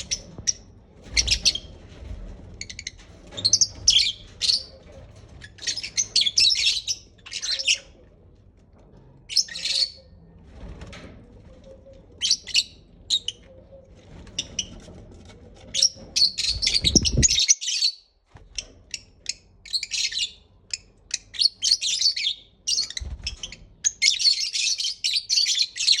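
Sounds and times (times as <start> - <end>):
lovebirds chirping and chattering: 5.4 - 8.0, 15.8 - 17.9.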